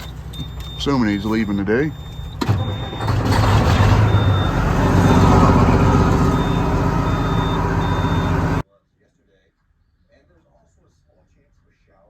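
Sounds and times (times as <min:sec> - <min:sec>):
diesel engine starting and idling: 0:00.0 - 0:08.6
warning buzzer beeping: 0:00.0 - 0:08.6.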